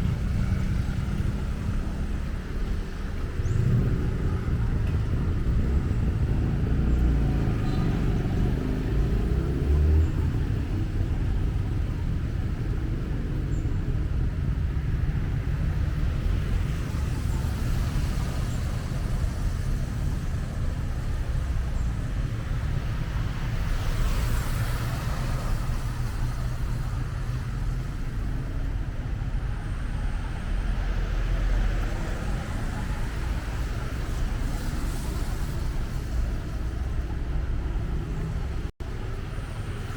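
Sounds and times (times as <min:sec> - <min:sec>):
low rumble of traffic: 0:00.0 - 0:39.9
vehicle passing with tyre hiss: 0:16.5 - 0:28.2, 0:30.2 - 0:39.9.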